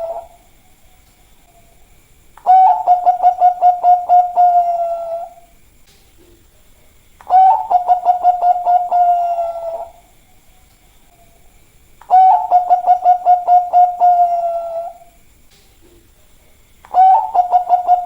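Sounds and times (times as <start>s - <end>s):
dove cooing: 0.0s - 0.4s, 2.4s - 5.5s, 7.2s - 10.1s, 12.1s - 15.2s, 16.9s - 18.0s.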